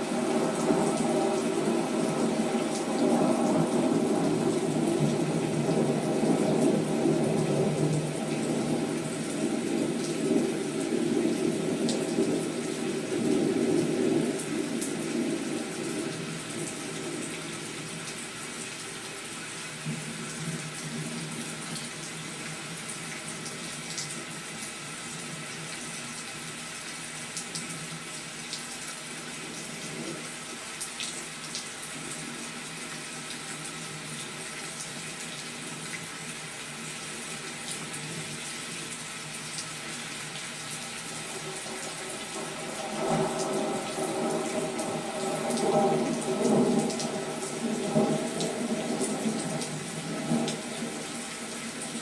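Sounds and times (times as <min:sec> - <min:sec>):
steady rain falling: 0:00.0 - 0:52.0
thunder rumbling: 0:00.1 - 0:17.7, 0:41.3 - 0:51.2.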